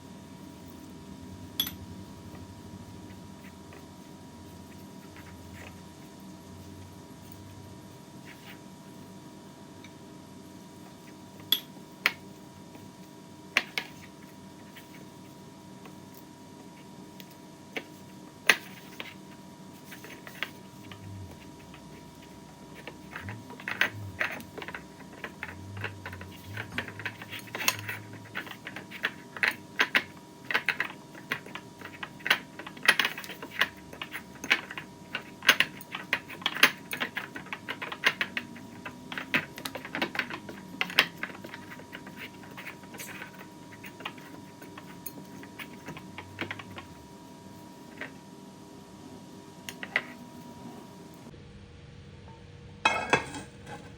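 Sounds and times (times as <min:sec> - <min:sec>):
faint steady hum: 0:00.0 - 0:53.9
kitchen utensils clinking: 0:52.9 - 0:53.9.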